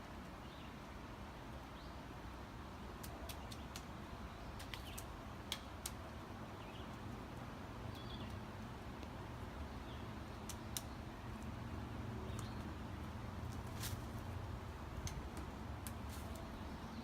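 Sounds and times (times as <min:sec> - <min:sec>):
woodpecker pecking at wood: 0:03.0 - 0:03.9, 0:10.3 - 0:11.5.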